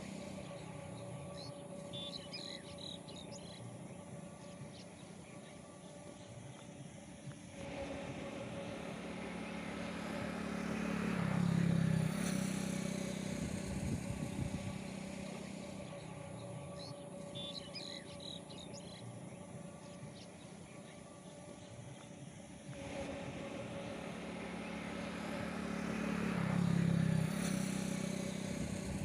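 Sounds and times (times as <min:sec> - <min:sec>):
bird chirps: 0:00.0 - 0:06.8, 0:15.9 - 0:22.2
outdoor background noise: 0:00.0 - 0:29.0
vehicle engine passing: 0:00.0 - 0:29.0.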